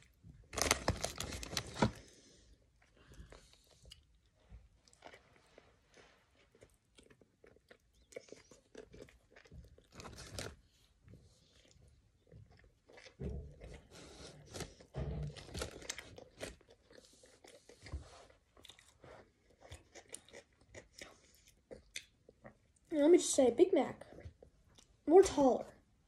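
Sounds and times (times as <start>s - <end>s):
person chewing food: 1.8s - 22.9s.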